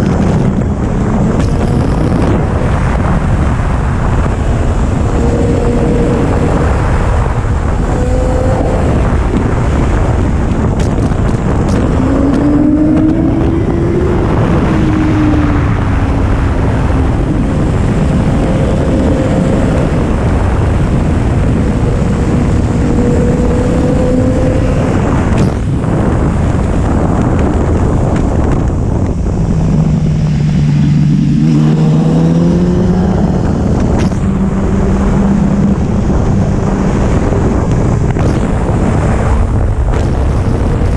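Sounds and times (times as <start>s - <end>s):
wind noise on microphone: 0.0s - 40.9s
motorcycle engine running: 15.2s - 40.9s.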